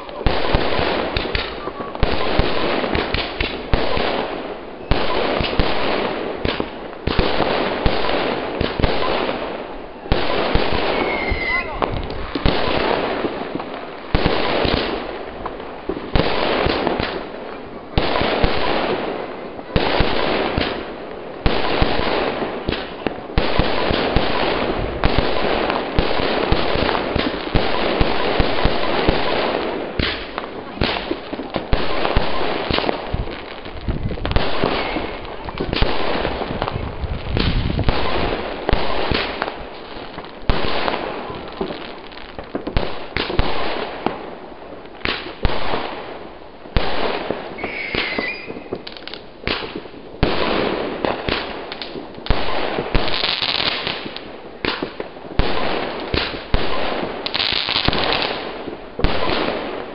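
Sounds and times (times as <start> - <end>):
firework bangs: 0.0 - 59.9
fireworks crackling: 0.0 - 59.9
wavering firework whistle: 10.7 - 12.4, 47.6 - 48.8.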